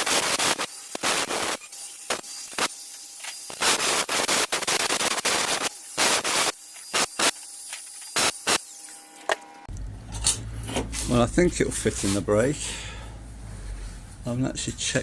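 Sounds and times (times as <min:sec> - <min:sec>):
power tool hissing bursts: 0:00.0 - 0:08.8.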